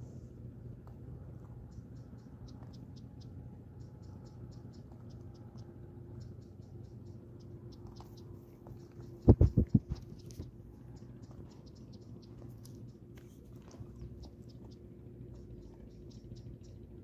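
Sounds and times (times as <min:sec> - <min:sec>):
low hum: 0:00.0 - 0:17.0
heavy dull thumps: 0:09.2 - 0:10.2.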